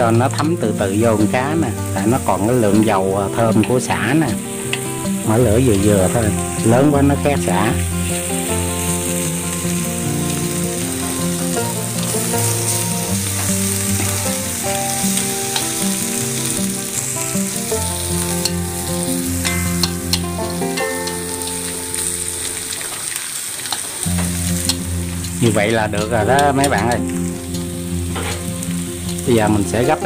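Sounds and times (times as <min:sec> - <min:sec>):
fish sizzling in oil: 0:00.0 - 0:30.0
soft background music: 0:00.0 - 0:30.0
chopsticks ticking against a pan: 0:02.0 - 0:04.9, 0:11.6 - 0:16.9, 0:17.8 - 0:27.7.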